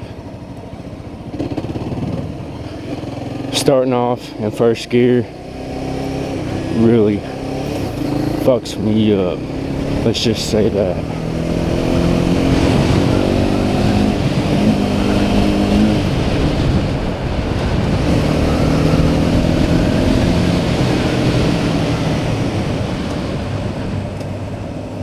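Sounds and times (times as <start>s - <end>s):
motorcycle engine accelerating: 0.0s - 25.0s
wind noise: 10.6s - 24.7s.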